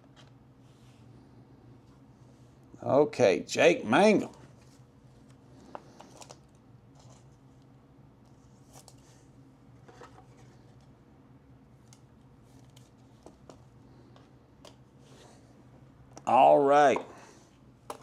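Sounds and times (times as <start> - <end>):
low room hum: 0.0 - 18.0
rustles and clicks of cards: 4.2 - 11.0, 11.8 - 15.2.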